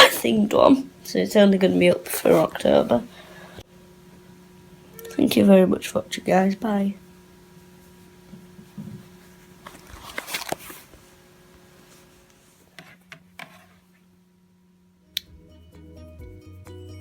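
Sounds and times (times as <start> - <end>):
faint steady hum: 0.0 - 16.9
rustling handling noise: 7.5 - 14.1.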